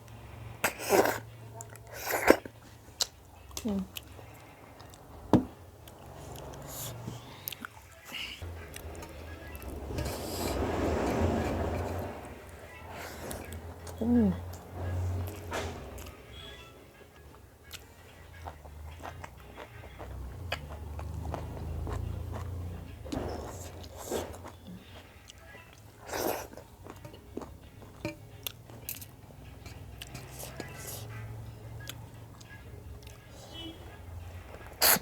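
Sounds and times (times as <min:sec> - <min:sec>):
person chewing and biting food: 0:17.6 - 0:22.6
chewing and biting: 0:17.6 - 0:33.4.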